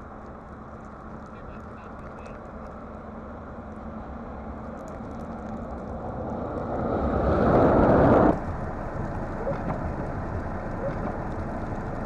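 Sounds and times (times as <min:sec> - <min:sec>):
vehicle approaching on snowy road: 0:00.0 - 0:12.0.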